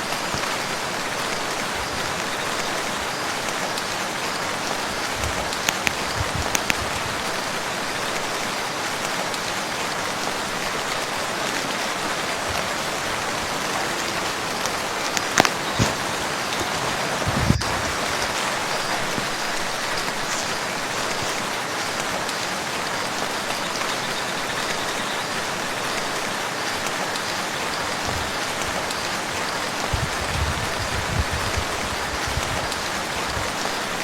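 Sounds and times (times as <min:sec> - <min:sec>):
rain falling on a lake: 0:00.0 - 0:34.0.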